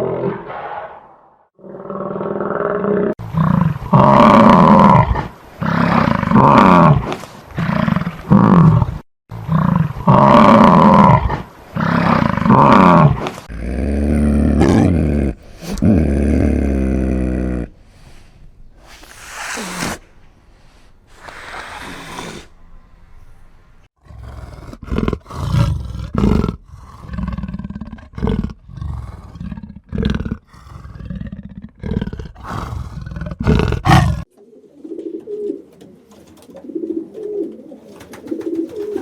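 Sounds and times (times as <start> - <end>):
large animal calling deeply: 31.8 - 34.3.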